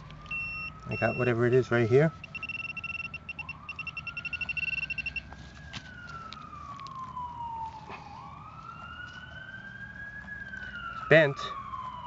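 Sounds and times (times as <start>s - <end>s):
siren wailing: 0.0s - 12.0s
metal detector rapid beeps: 0.3s - 5.3s.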